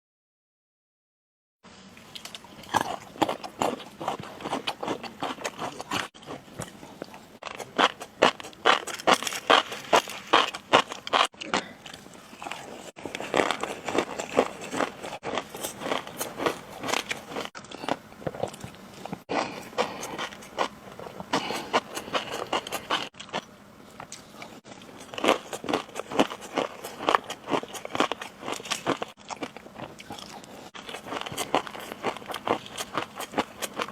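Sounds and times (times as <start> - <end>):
crunchy chewing: 2.0 - 33.9.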